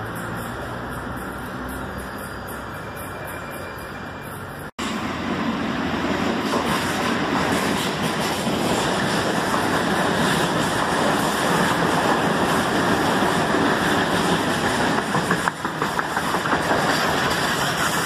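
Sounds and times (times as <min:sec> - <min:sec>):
train wheels rumbling on rails: 0:00.0 - 0:18.0
wheels clicking over rail joints: 0:06.4 - 0:18.0.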